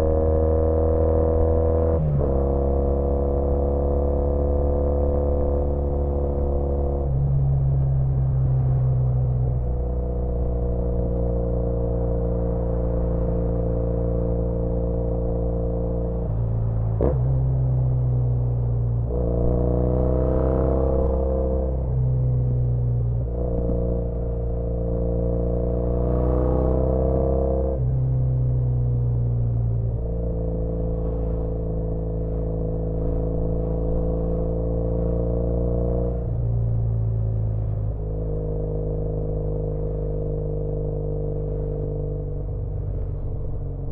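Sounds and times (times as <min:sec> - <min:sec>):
motorcycle engine cruising: 0:29.2 - 0:43.9.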